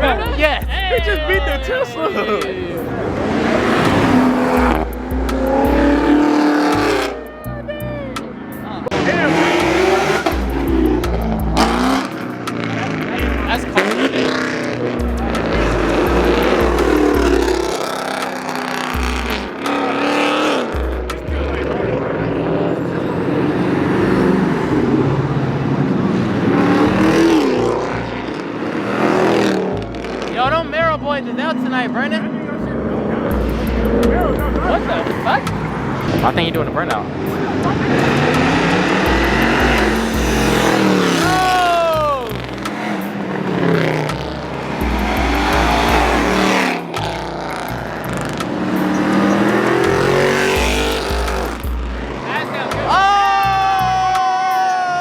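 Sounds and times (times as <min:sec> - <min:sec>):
car engines revving: 0:00.0 - 0:55.0
tire noise from burnout: 0:00.0 - 0:55.0.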